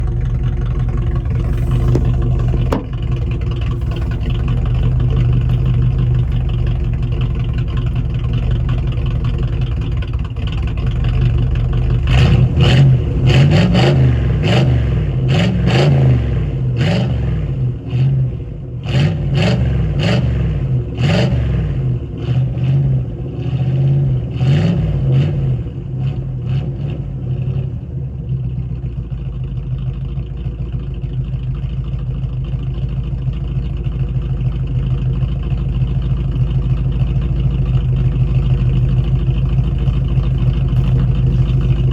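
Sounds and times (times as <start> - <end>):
car engine idling and revving: 0.0 - 41.9.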